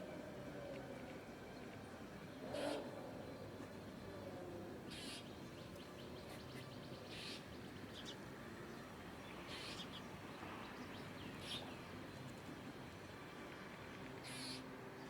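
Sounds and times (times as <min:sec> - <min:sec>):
small birds chirping: 0:09.2 - 0:11.9.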